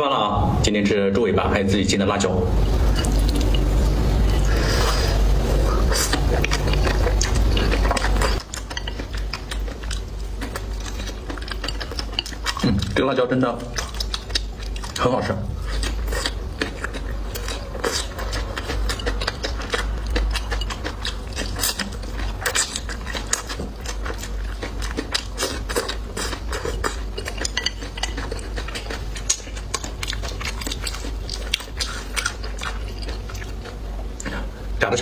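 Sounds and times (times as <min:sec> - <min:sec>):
utensils clicking against plates: 0:06.4 - 0:12.7, 0:15.7 - 0:33.5.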